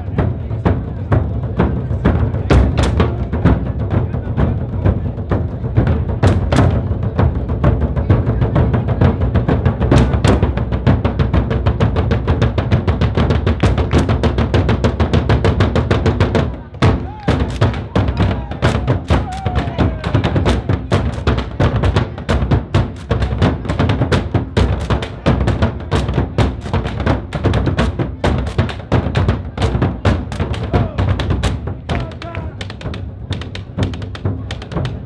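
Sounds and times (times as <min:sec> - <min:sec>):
drums beating fast rhythm: 0:00.0 - 0:35.0.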